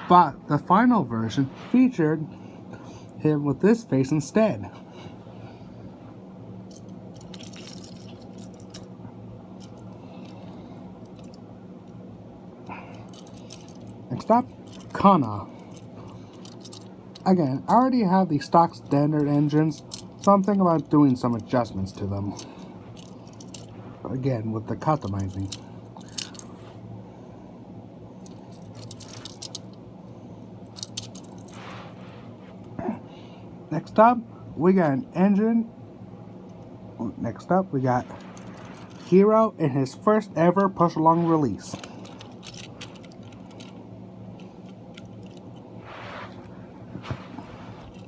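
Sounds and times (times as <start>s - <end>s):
steady low hum: 0.0s - 48.0s
toy engines clicking and rustling: 25.0s - 26.5s, 28.2s - 29.7s, 30.7s - 31.6s, 41.6s - 43.8s.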